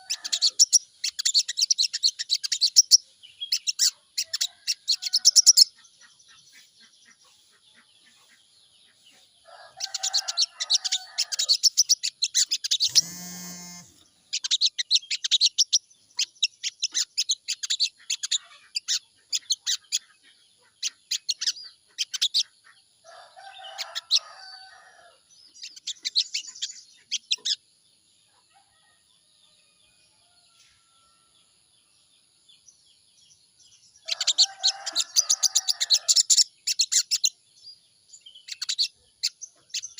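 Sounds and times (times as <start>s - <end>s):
bird rapid high chattering: 11.4s - 20.0s.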